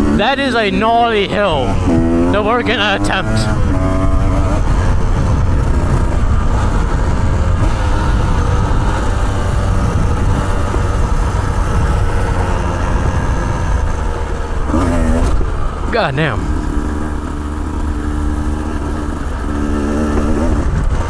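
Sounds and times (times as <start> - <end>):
dirt bike engine idling: 0.0 - 7.4.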